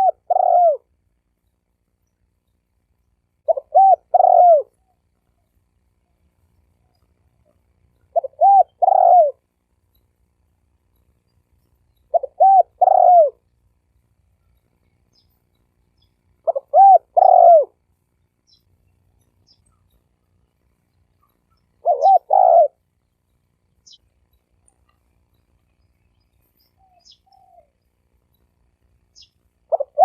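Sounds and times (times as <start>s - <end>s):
dove cooing: 0.0s - 0.9s, 3.4s - 5.0s, 8.1s - 9.5s, 12.0s - 13.4s, 16.4s - 17.8s, 21.7s - 22.8s, 26.8s - 27.8s, 29.7s - 30.0s.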